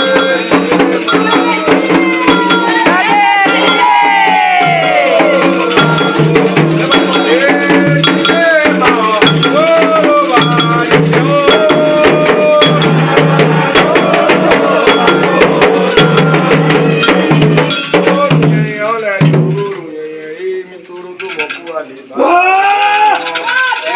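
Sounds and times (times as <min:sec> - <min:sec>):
metal bell struck in quick pattern: 0:00.0 - 0:18.2
voices singing: 0:00.0 - 0:21.5
drums: 0:00.0 - 0:23.9.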